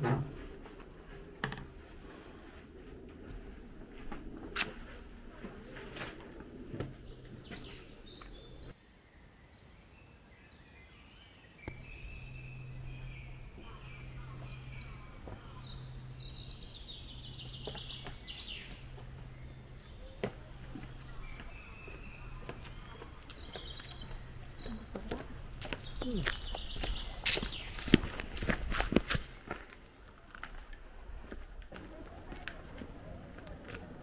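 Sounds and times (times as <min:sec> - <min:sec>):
birds chirping and trilling: 0:05.9 - 0:29.6
low steady hum: 0:11.6 - 0:29.5.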